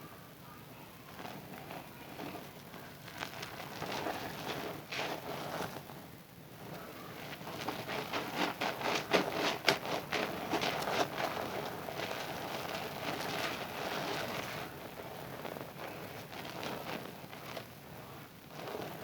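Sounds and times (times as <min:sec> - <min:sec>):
suds squishing and crackling: 0:01.2 - 0:05.9.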